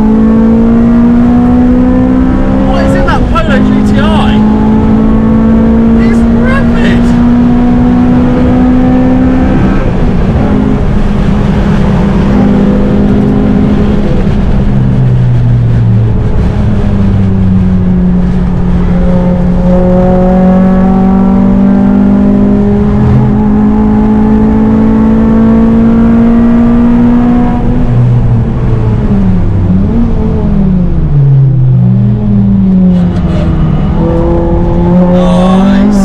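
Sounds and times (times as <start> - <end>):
car engine accelerating hard: 0.0 - 36.0.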